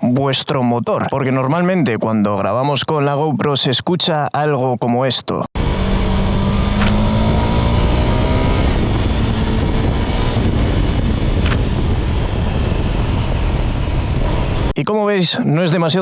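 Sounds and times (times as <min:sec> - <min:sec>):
wind roaring on microphone: 0:05.6 - 0:14.8
sharp microphone crackles: 0:06.5 - 0:07.7, 0:08.8 - 0:14.8.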